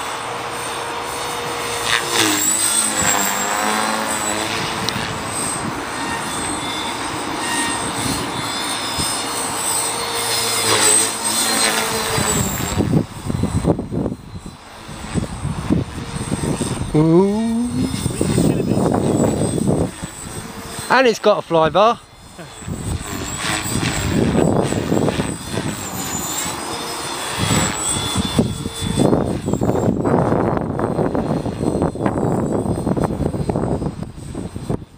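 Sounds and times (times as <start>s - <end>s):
rc helicopter motor whine: 0.0s - 34.9s
wind buffeting microphone: 4.2s - 9.3s, 11.9s - 20.9s, 21.6s - 34.9s.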